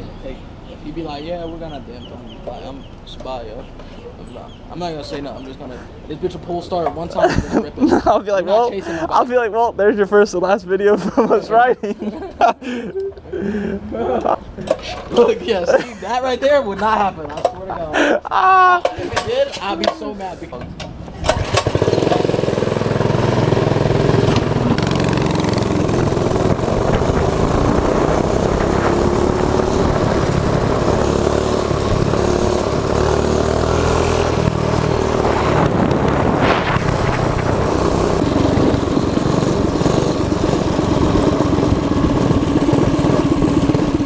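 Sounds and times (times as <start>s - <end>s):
mini bike engine revving: 21.2s - 44.0s.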